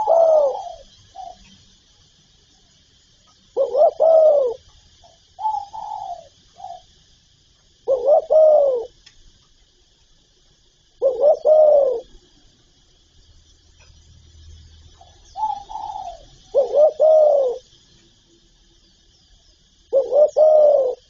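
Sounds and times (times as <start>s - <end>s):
dove cooing: 0.0s - 1.5s, 3.5s - 7.0s, 7.8s - 9.0s, 11.0s - 12.2s, 15.0s - 17.7s, 19.9s - 21.0s.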